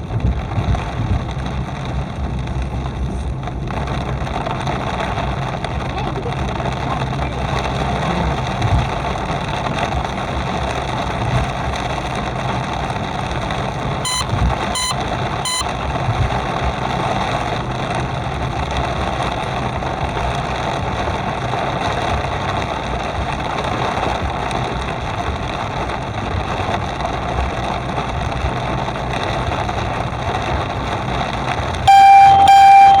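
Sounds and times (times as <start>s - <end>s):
car driving on wet road: 0.0s - 33.0s
low engine hum: 0.0s - 33.0s
loud held beep: 14.1s - 15.7s, 31.9s - 33.0s
short beeps: 14.1s - 15.7s, 31.9s - 33.0s.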